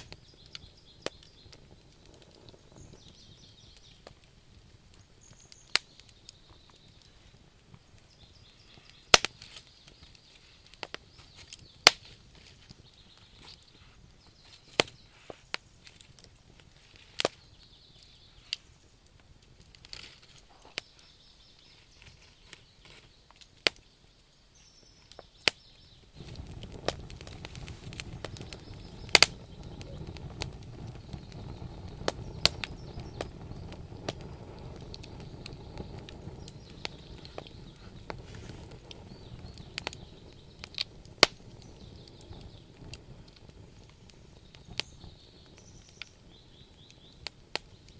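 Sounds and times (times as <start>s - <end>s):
wood fire crackling and popping: 0.0s - 47.9s
low rushing rumble: 26.2s - 43.8s.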